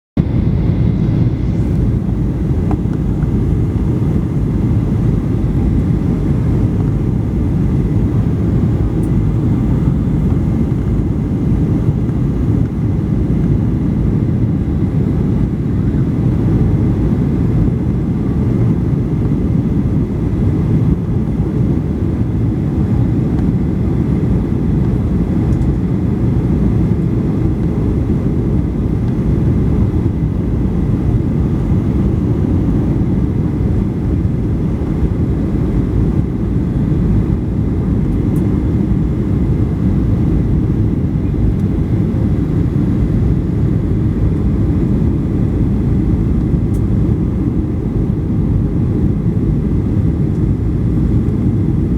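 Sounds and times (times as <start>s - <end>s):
faint high whine: 0.2s - 19.2s
jet airliner roar in flight: 0.2s - 51.9s.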